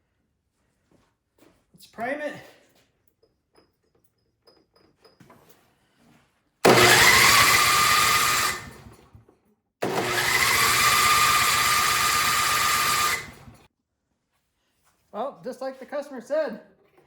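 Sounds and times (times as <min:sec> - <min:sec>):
electric starter cranking engine: 0:06.6 - 0:09.1, 0:09.8 - 0:13.7.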